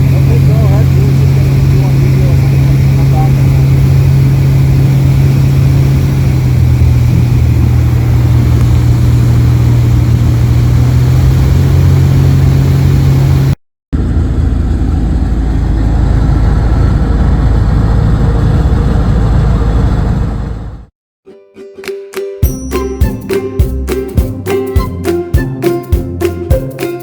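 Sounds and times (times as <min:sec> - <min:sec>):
light aircraft engine droning: 0:00.0 - 0:20.8
rough low engine sound: 0:00.0 - 0:20.9, 0:22.5 - 0:27.0.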